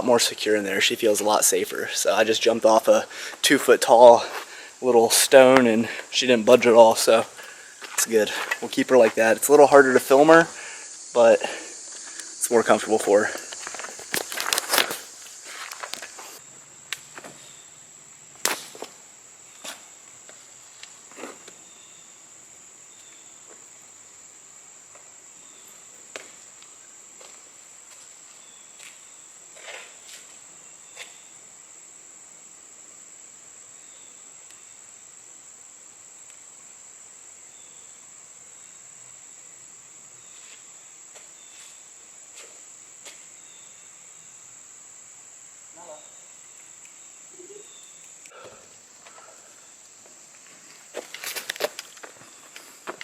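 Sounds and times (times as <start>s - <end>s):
high-pitched insect chorus: 0.0s - 53.0s
sharp clicks and crunches: 13.3s - 17.0s, 50.7s - 53.0s.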